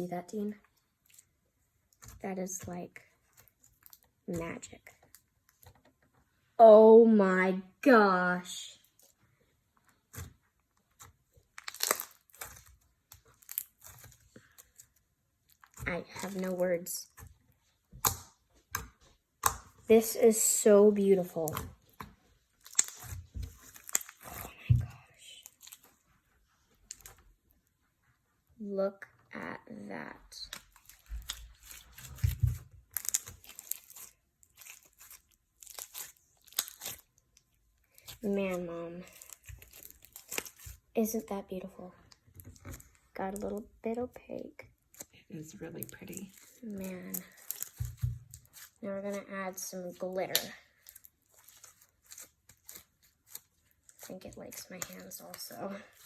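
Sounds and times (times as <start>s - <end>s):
slime squished by hand: 10.0s - 16.6s, 21.4s - 26.0s, 30.5s - 40.9s, 44.8s - 49.2s.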